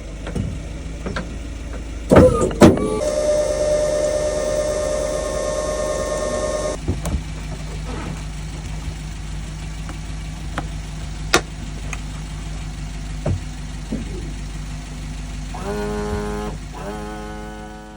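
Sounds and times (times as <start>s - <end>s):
outboard motor idling: 0.0s - 17.9s
sharp clicks and knocks: 0.2s - 2.8s, 6.8s - 9.0s.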